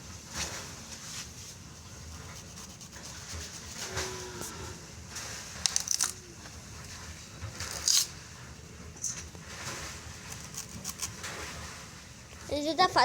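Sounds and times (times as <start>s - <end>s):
knife cutting bananas from stalk: 10.3s - 11.2s.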